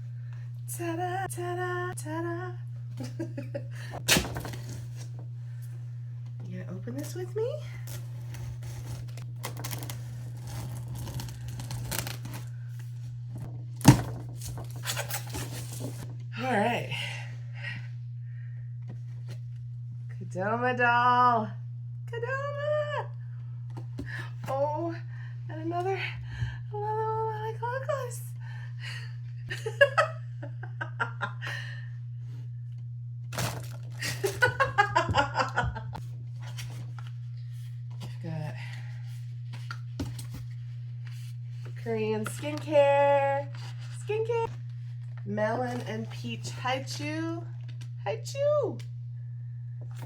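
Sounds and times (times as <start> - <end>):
steady low hum: 0.0 - 50.0
woman laughing: 3.0 - 4.0, 29.5 - 31.9, 34.0 - 36.0
cardboard box tearing: 8.3 - 12.5, 33.3 - 34.0.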